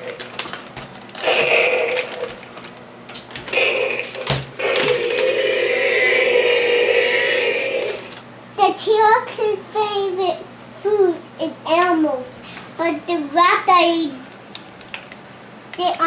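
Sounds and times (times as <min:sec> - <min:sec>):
plastic toys clacking: 0:00.0 - 0:06.4
person imitating dinosaur roars: 0:01.2 - 0:02.4, 0:03.5 - 0:08.1.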